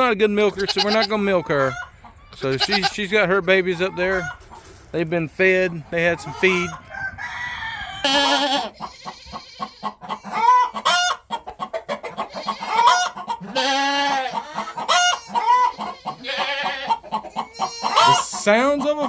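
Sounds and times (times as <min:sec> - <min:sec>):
chickens clucking: 0:00.0 - 0:19.0
roosters crowing: 0:05.9 - 0:18.9.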